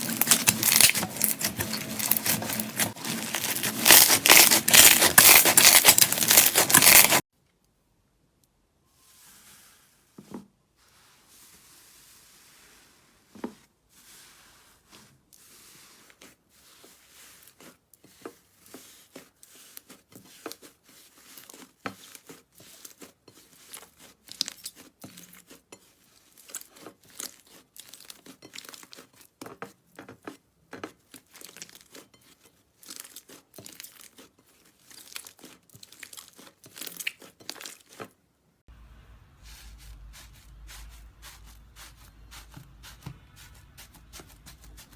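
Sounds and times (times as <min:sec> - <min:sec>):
slime squeezed by hand crackling: 0:00.0 - 0:07.2.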